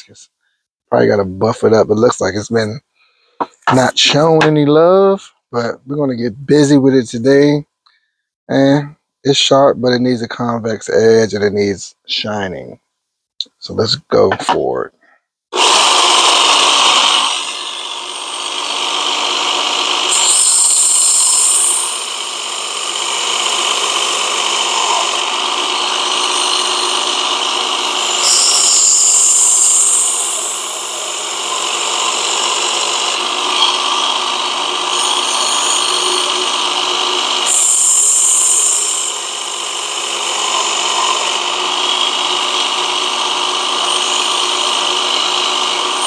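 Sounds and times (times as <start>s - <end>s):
belt sharpener running: 15.6s - 46.0s
knife blade grinding on belt: 20.1s - 42.5s.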